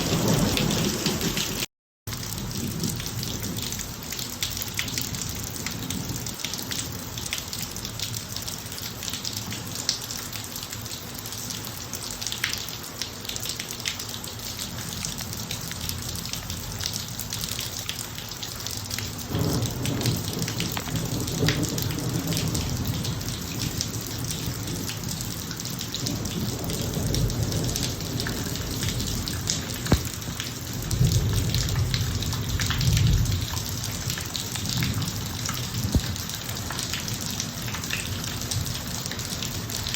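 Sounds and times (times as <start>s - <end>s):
thunder rumbling: 0.0s - 1.6s, 19.3s - 36.4s
rain ticking on hard surfaces: 0.0s - 39.9s.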